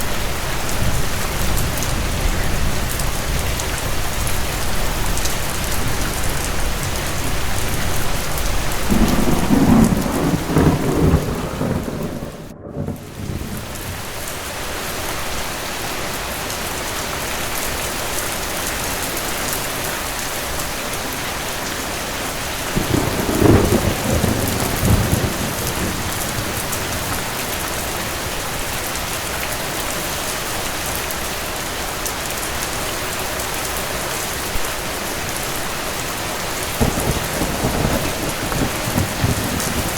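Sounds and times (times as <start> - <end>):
steady rain: 0.0 - 39.9
thunder rolling: 0.8 - 14.4, 21.1 - 28.8, 36.8 - 39.9.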